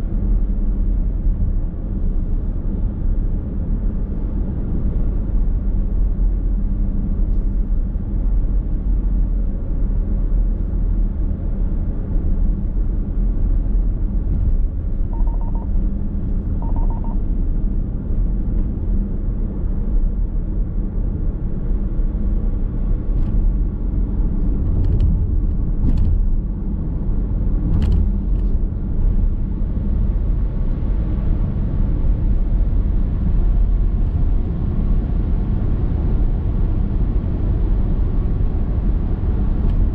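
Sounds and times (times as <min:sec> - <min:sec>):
road and tyre noise in car: 0:00.0 - 0:39.9
short beeps: 0:15.1 - 0:15.8, 0:16.6 - 0:17.2.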